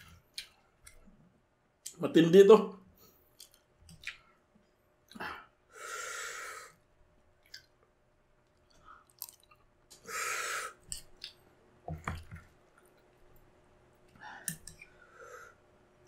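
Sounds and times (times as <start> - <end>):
chewing and mouth clicks: 0.1 - 1.0, 3.3 - 4.3, 7.4 - 7.8, 8.4 - 10.0, 10.8 - 11.4
breathy hisses: 5.7 - 6.8, 10.0 - 10.8.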